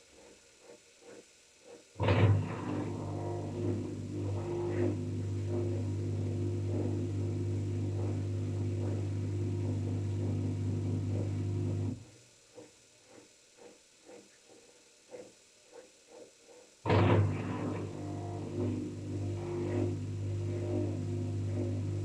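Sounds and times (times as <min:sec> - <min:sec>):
washing machine humming: 0:02.0 - 0:12.2, 0:16.9 - 0:22.0.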